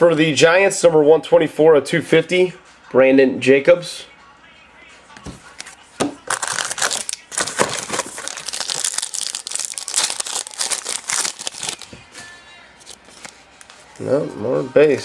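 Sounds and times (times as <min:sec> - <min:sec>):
trading cards and packaging crinkling: 0:05.4 - 0:14.1.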